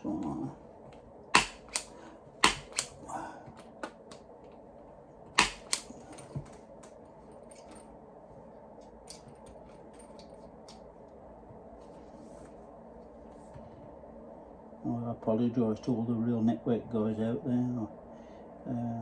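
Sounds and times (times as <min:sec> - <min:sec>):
hand tools clicking on cable: 0:01.4 - 0:03.0, 0:05.4 - 0:07.0.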